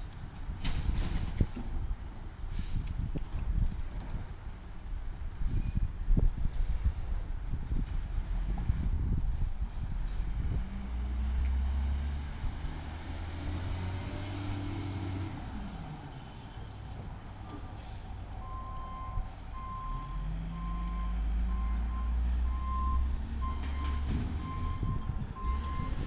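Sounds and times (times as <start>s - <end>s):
diesel engine running: 11.7s - 26.0s
reversing alarm beeping: 18.4s - 26.0s.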